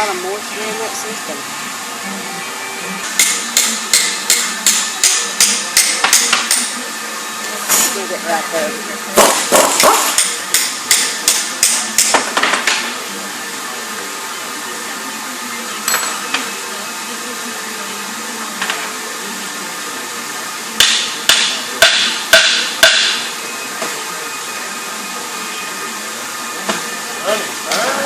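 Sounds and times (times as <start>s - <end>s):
steady background hum: 0.0s - 28.0s
hammer striking metal: 3.2s - 6.7s, 20.8s - 23.3s.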